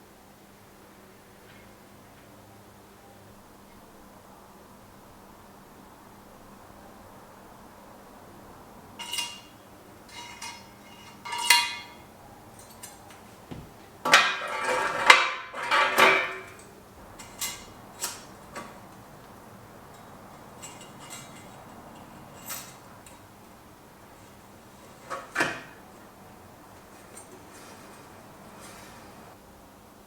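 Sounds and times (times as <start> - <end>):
metal tools clinking: 9.0 - 29.3.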